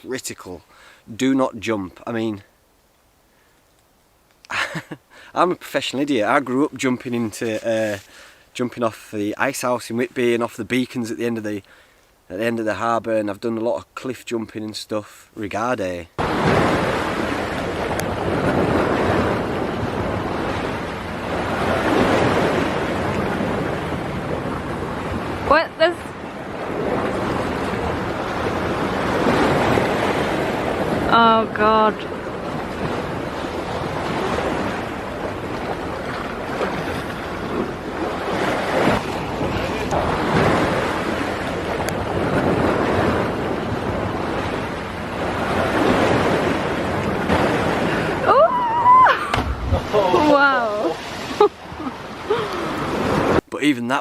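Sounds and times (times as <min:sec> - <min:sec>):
sea surf: 0:04.5 - 0:13.3, 0:15.4 - 0:54.0
waves washing in: 0:15.4 - 0:54.0
wind on microphone: 0:16.2 - 0:53.4.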